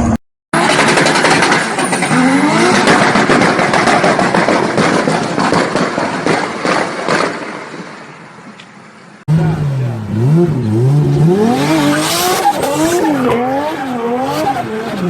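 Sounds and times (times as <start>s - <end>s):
car engine revving: 0.0s - 6.8s, 9.3s - 15.0s
exhaust crackling pops and bangs: 0.6s - 8.0s.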